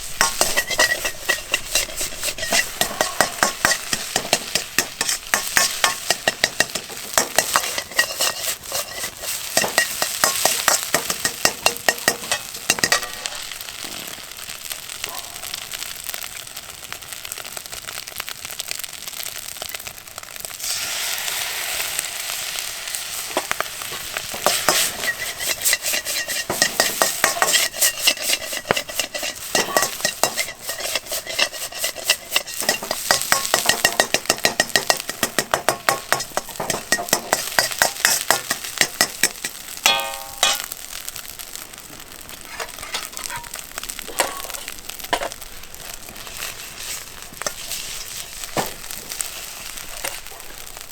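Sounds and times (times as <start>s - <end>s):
metal utensil clacking on wok: 0.0s - 13.5s, 23.3s - 40.8s, 42.4s - 45.4s
rice sizzling in a wok: 0.0s - 50.9s.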